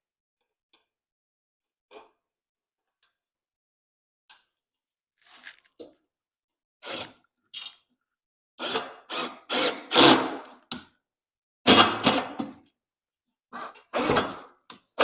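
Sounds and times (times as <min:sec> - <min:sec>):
power drill drilling into wood: 0:08.6 - 0:10.4.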